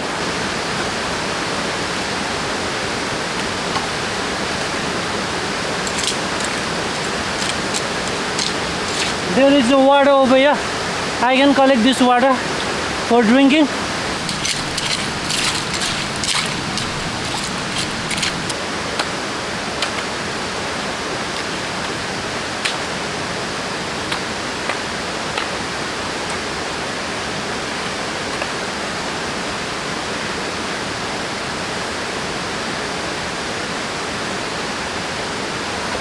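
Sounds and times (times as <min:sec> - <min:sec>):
stream water flowing: 0:00.0 - 0:36.0
small clicks and knocks: 0:05.8 - 0:09.2, 0:14.2 - 0:18.6.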